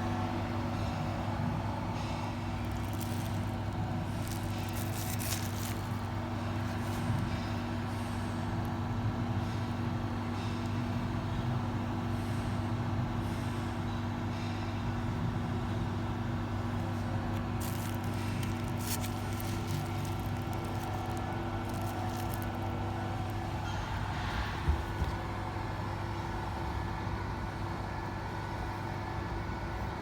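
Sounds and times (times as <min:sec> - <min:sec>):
stepper motors humming: 0:00.0 - 0:08.7, 0:16.7 - 0:25.2.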